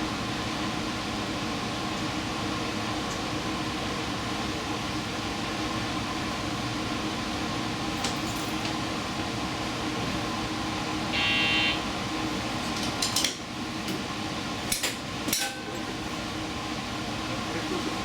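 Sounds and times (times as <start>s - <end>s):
high buzz: 11.1s - 11.8s.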